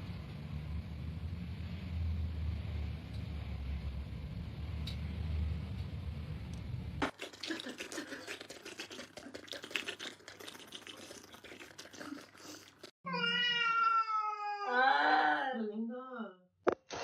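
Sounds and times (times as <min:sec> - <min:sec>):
wet crackling: 0:07.0 - 0:12.9
cat meowing: 0:13.1 - 0:15.5.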